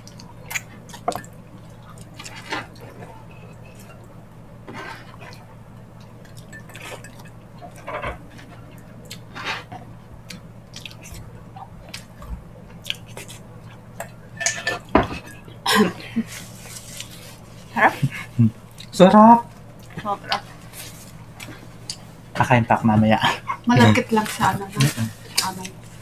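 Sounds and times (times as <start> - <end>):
faint low hum: 0.0 - 26.0
wet lip smacks and chewing: 10.3 - 11.2.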